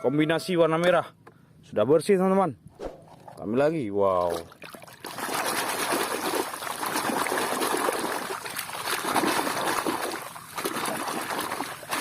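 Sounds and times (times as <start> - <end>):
water splashing and trickling: 4.0 - 12.0.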